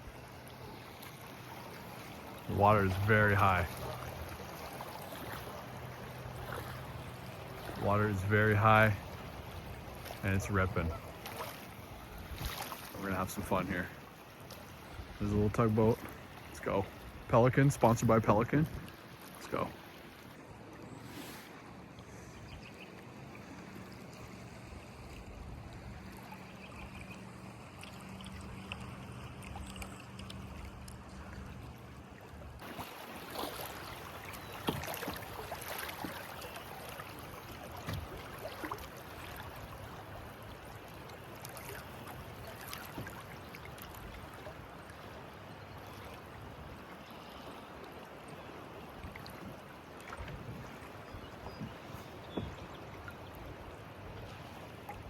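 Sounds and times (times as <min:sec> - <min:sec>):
sharp water splashes: 0:00.0 - 0:17.0, 0:32.6 - 0:45.2
river water rushing and splashing: 0:00.0 - 0:55.0.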